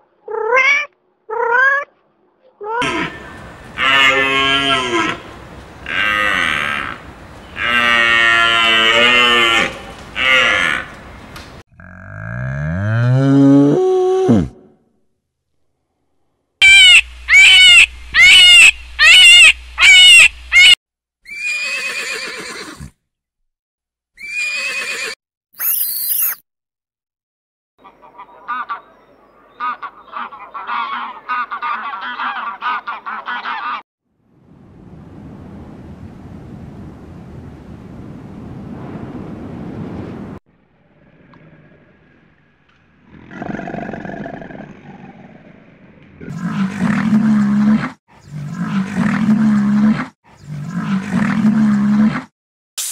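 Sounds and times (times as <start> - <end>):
animal crying out: 0.3 - 1.9, 16.6 - 22.9
rushing wind-like noise: 34.2 - 40.4.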